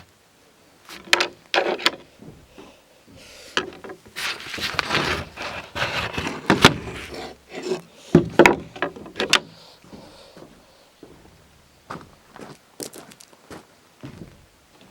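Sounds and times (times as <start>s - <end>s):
firewood knocking and scraping: 0.9s - 12.5s.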